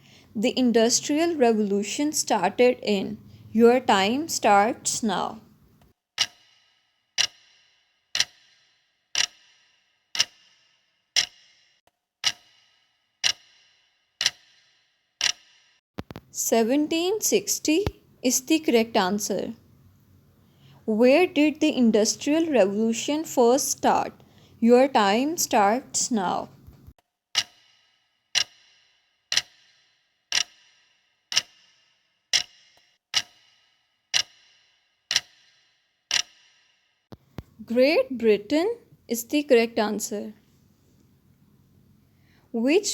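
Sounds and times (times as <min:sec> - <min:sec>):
clock ticking: 0:00.4 - 0:19.6, 0:21.2 - 0:39.6.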